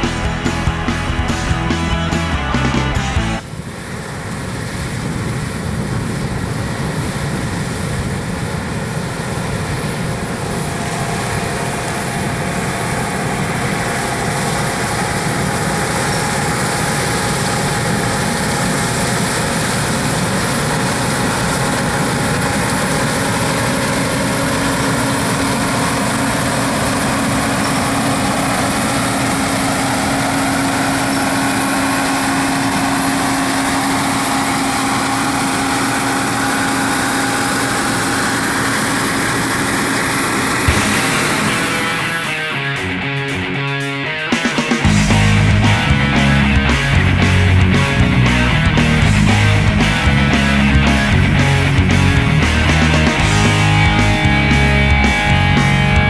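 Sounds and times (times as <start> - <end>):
harvest machinery engine running: 0.0 - 43.8, 44.5 - 56.0
steady low hum: 3.3 - 43.5.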